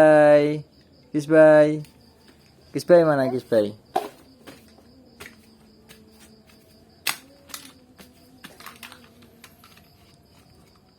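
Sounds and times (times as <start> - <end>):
small hard objects clicking: 7.0 - 10.8.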